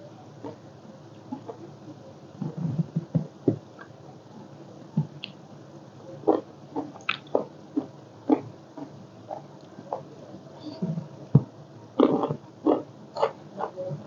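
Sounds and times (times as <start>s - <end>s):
chewing and wet mouth smacks: 6.8s - 7.4s.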